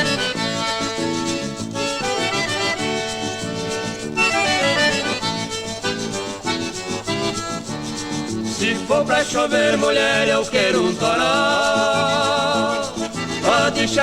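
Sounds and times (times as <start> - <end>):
band accompaniment: 0.0 - 9.8
accordion melody: 0.0 - 14.0.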